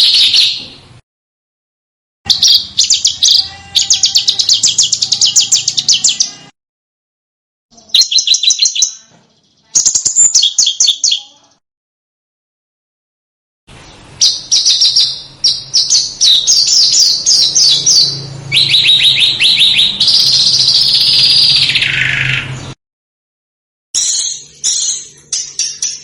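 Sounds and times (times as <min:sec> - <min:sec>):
songbird chirping and trilling: 0:00.0 - 0:00.8, 0:02.3 - 0:06.5, 0:07.7 - 0:11.6, 0:13.7 - 0:22.8, 0:24.0 - 0:26.0.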